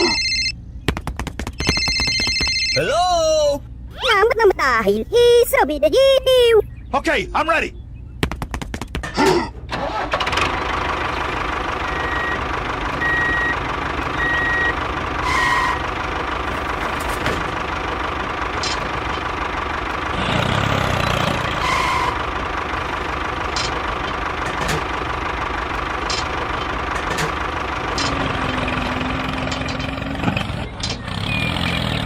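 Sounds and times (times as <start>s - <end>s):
tractor engine cranking and idling: 8.4s - 32.0s.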